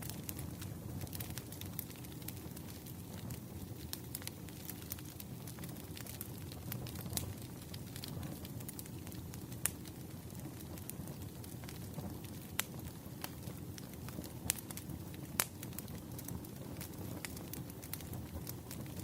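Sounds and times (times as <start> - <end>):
low rumble of burning logs: 0.0 - 19.0
wood fire crackling and popping: 0.0 - 19.0.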